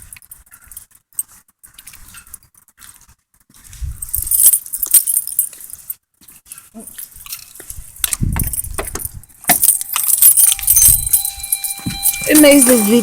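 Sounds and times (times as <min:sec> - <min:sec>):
keys jangling: 0:04.0 - 0:06.0, 0:06.9 - 0:13.0.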